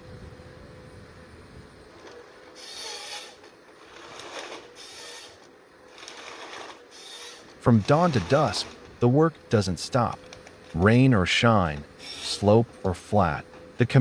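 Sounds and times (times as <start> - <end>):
low mechanical hum: 0.0 - 14.0
wood scraping and rubbing: 2.0 - 9.1.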